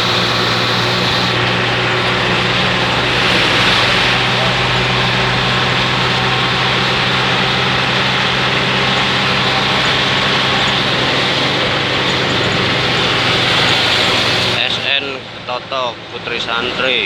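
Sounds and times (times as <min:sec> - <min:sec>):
tyres hissing on wet road: 0:00.0 - 0:08.2.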